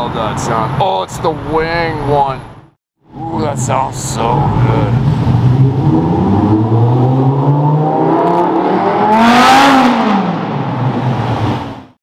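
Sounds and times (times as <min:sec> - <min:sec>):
traffic noise: 0:00.0 - 0:11.9
car engine revving past: 0:04.4 - 0:11.8.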